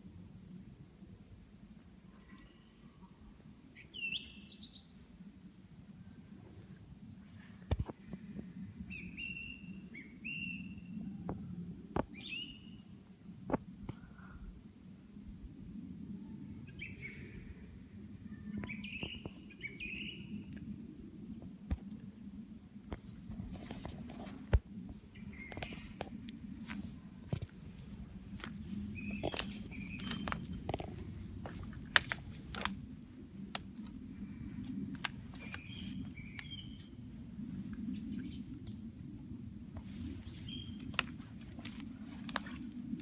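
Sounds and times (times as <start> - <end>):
small birds chirping: 18.4 - 20.3, 25.1 - 37.1, 39.8 - 43.0
steady low rumble: 20.2 - 43.0
sharp clicks: 28.3 - 32.8, 34.6 - 36.6.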